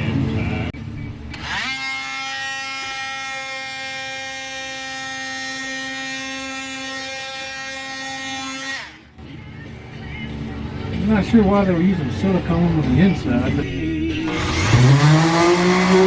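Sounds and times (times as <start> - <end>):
power tool motor whining: 1.3 - 9.0, 14.2 - 16.0.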